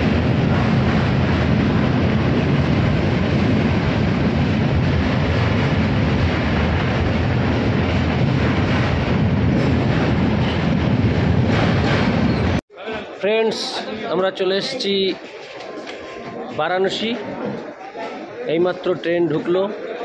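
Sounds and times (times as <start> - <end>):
train wheels rumbling: 0.0 - 12.6.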